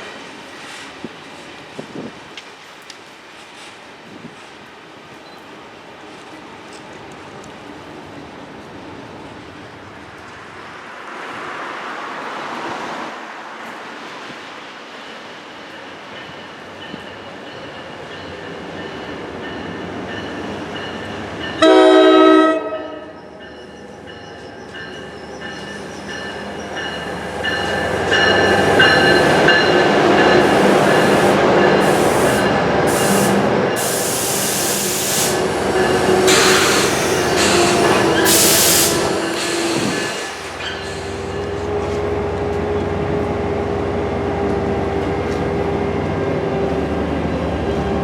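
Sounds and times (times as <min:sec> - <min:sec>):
train wheel and rail noise: 0:00.0 - 0:48.0
locomotive horn blast: 0:21.6 - 0:23.2, 0:35.7 - 0:39.9.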